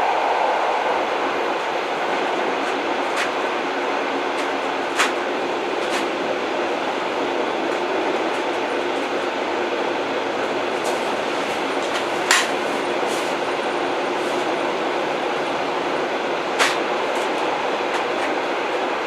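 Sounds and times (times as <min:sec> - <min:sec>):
train rumbling on rails: 0:00.0 - 0:19.0
sharp rail clacks: 0:01.6 - 0:06.2, 0:10.4 - 0:13.4, 0:16.5 - 0:18.5.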